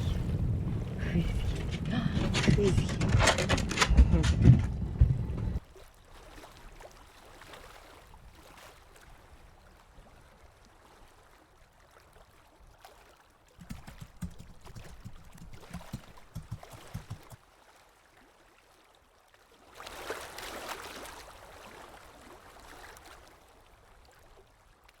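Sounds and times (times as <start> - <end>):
low rumbling thumps: 0.0 - 5.6
water gurgling and lapping: 0.0 - 24.6
rush of water: 19.6 - 24.2.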